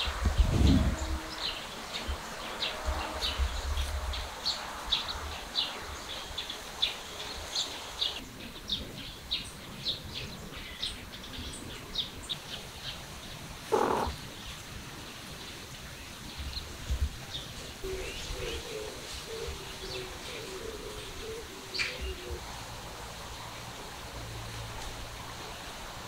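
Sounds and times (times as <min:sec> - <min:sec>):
small birds chirping: 0:01.3 - 0:16.7.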